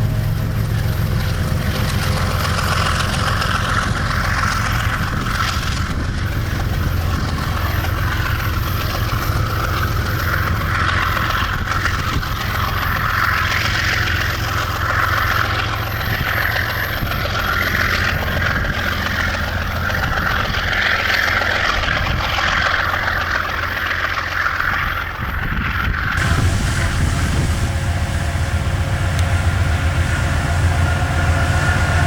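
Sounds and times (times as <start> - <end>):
diesel locomotive engine drone: 0.0 - 32.0
high rushing sound: 26.2 - 32.0.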